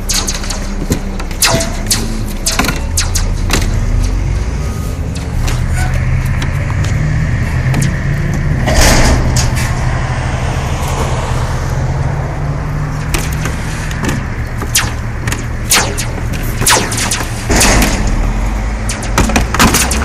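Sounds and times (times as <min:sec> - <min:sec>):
sharp metallic clicks and knocks: 0:00.0 - 0:04.4, 0:05.1 - 0:09.9, 0:12.9 - 0:20.0
roof seamer motor hum: 0:00.0 - 0:20.0.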